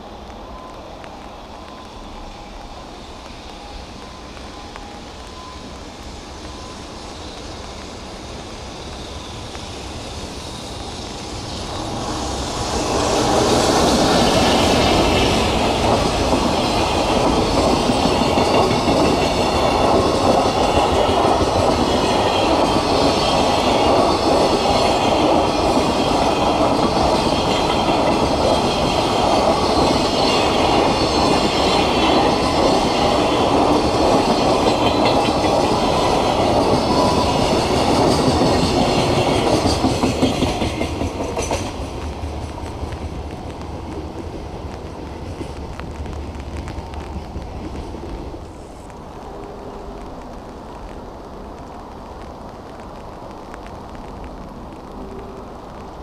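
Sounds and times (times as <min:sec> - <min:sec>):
wagons rolling on rails: 0:00.0 - 0:50.0
electric locomotive passing: 0:00.0 - 0:56.0.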